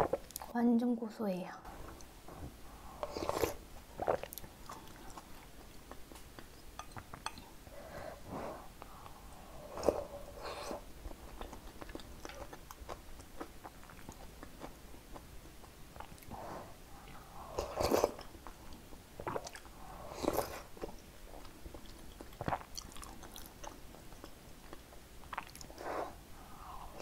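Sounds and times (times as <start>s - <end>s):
close-miked chewing: 3.0s - 7.5s, 8.8s - 25.8s.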